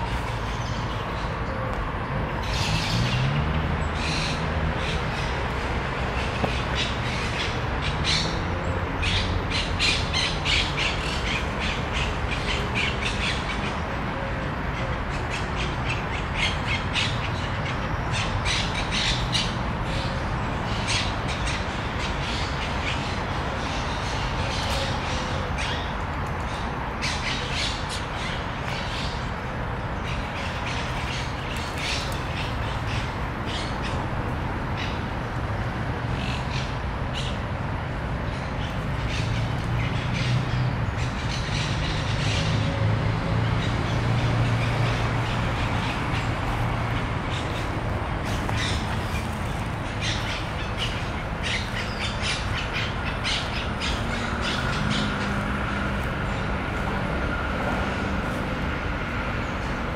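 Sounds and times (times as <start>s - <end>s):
birds chirping and squawking: 14.8s - 34.1s, 38.3s - 58.4s.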